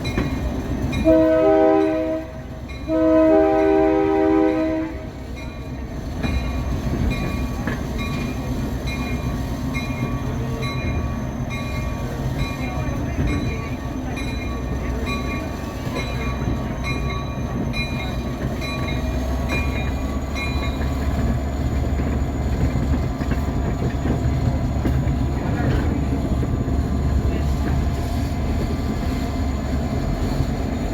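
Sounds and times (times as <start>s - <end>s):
diesel locomotive rumble: 0.0s - 30.9s.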